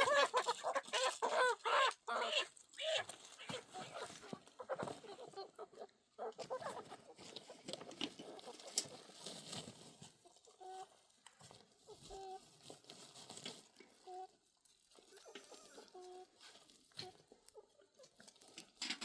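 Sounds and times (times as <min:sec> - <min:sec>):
fowl clucking: 0:00.0 - 0:09.6, 0:10.2 - 0:11.0, 0:11.8 - 0:12.6, 0:15.0 - 0:18.2.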